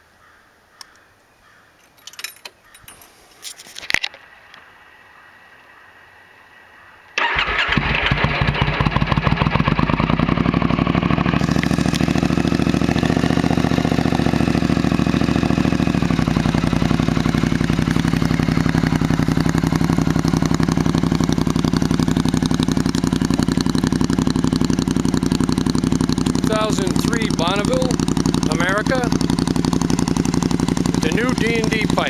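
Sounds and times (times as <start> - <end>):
motorcycle engine idling: 6.7 - 32.0
motorcycle engine starting: 7.2 - 32.0.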